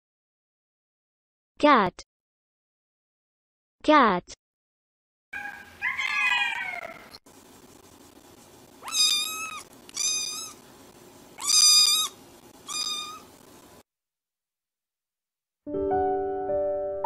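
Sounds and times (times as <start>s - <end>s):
cat meowing: 5.4s - 7.2s, 8.8s - 10.6s, 11.4s - 13.3s.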